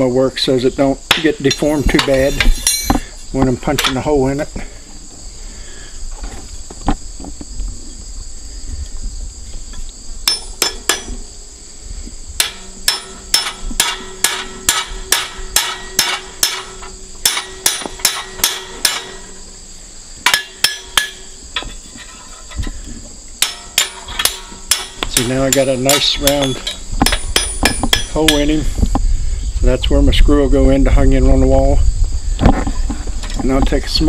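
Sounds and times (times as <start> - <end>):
insects chirping: 0.0 - 34.0
hammer striking iron on anvil: 1.1 - 3.0, 10.2 - 11.3, 12.4 - 19.4, 20.2 - 22.3, 23.4 - 28.6.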